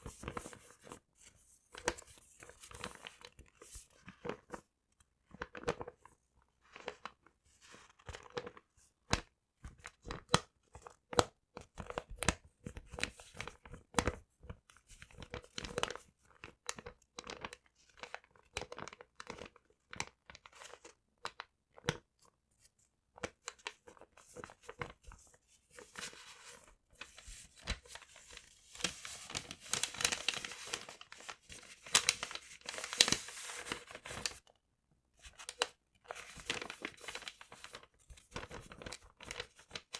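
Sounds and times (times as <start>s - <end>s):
paper crumpling and tearing: 25.7s - 34.4s, 35.2s - 39.9s.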